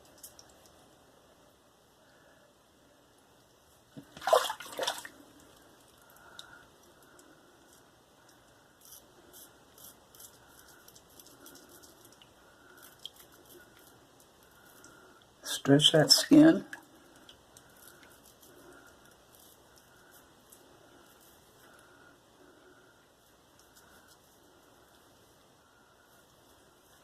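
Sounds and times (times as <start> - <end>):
water splashes: 4.0 - 5.2
razor scratching through stubble: 8.8 - 14.8.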